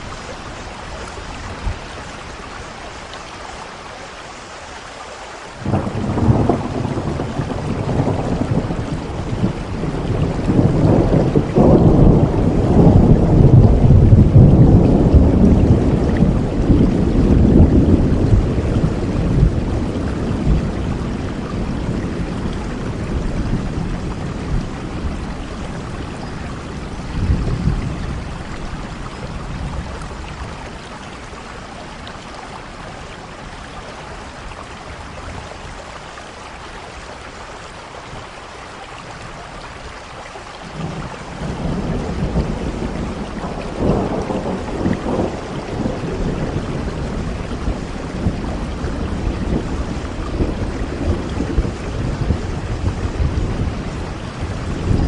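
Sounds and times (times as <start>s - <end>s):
heavy rain: 0.0s - 55.0s
thunder rumbling: 5.6s - 32.0s, 40.6s - 55.0s.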